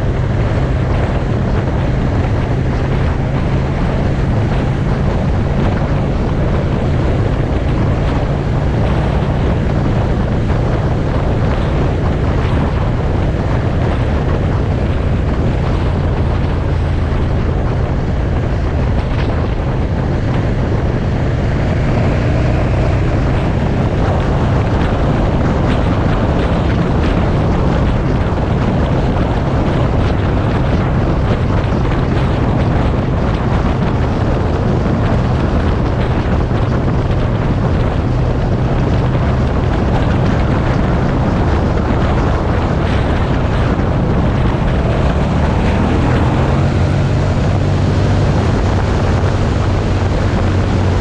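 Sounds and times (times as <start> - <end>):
motorcycle engine running: 0.0 - 51.0
wind buffeting microphone: 0.0 - 51.0.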